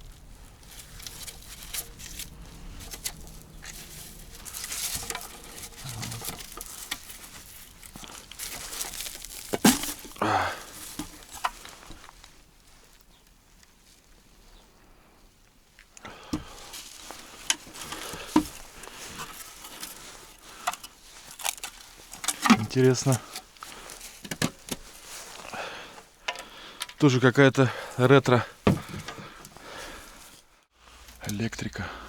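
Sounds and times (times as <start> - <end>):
rustling and crinkling: 0.0 - 32.0
objects knocking and clattering: 0.7 - 10.2, 24.2 - 25.0, 28.6 - 29.4.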